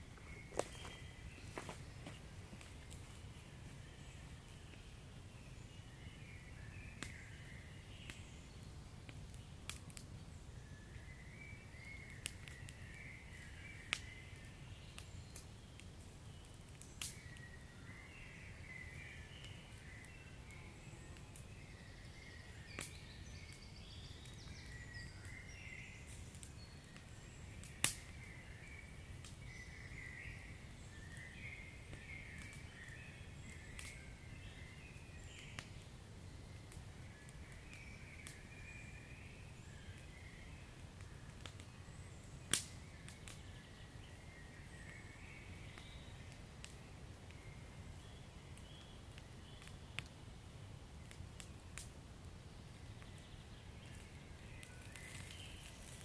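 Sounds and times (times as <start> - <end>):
wood fire crackling: 0.0 - 20.5, 21.1 - 56.0
sharp fire pops: 42.5 - 43.4.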